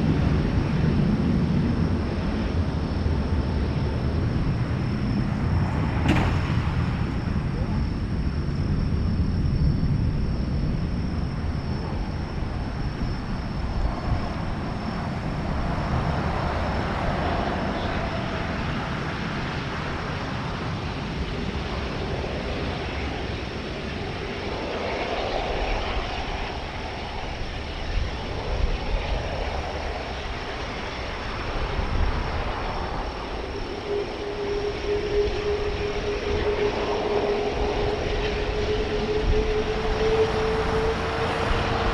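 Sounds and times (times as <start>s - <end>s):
jet engines rumbling on takeoff: 0.0s - 41.9s.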